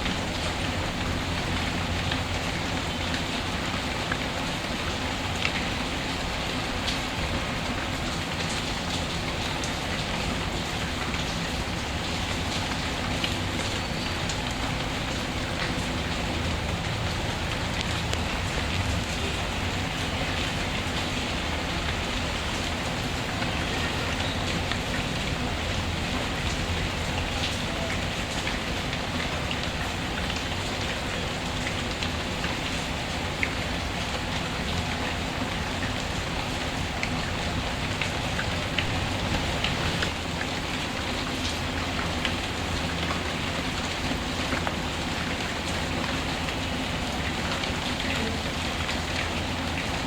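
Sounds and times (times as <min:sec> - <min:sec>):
steady rain falling: 0:00.0 - 0:50.0
log fire crackling: 0:38.7 - 0:41.2.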